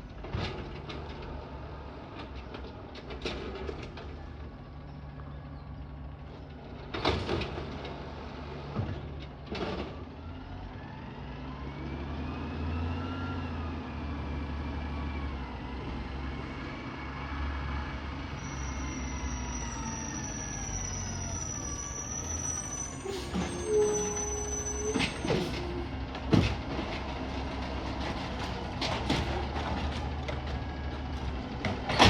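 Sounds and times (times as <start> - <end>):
diesel engine revving: 6.9 - 32.0.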